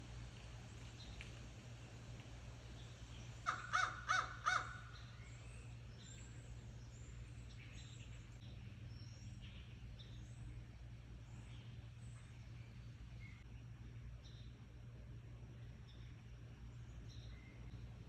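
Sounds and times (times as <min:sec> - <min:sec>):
small birds chirping: 0:02.0 - 0:18.0
crow cawing: 0:03.4 - 0:05.0.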